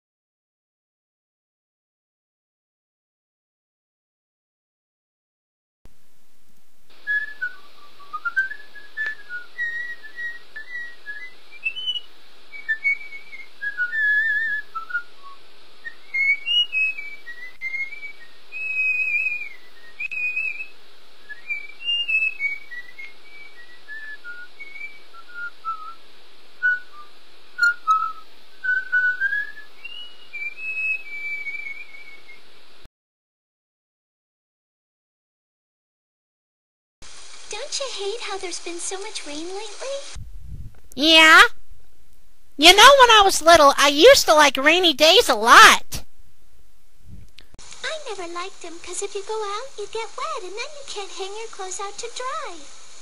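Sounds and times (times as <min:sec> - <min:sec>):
steady background hiss: 0:05.9 - 0:32.9, 0:37.0 - 0:53.0
person whistling a tune: 0:07.1 - 0:12.0.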